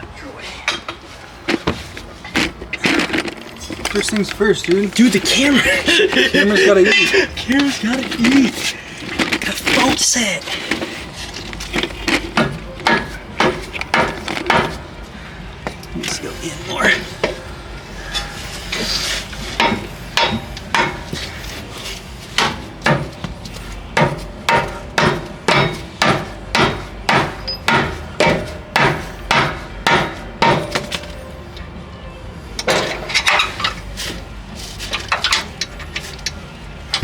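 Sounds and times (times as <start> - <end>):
hammer striking steel: 12.4 - 15.0, 19.5 - 21.3, 22.4 - 31.3.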